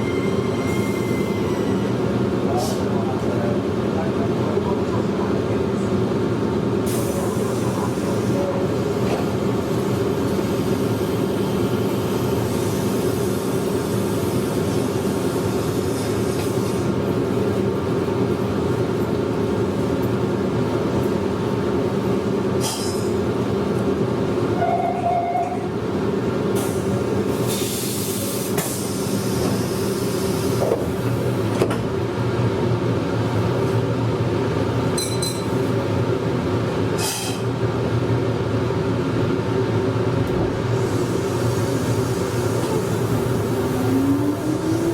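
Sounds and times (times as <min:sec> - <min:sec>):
train wheels rumbling on rail: 0:00.0 - 0:44.9
train motor hum: 0:37.5 - 0:44.9.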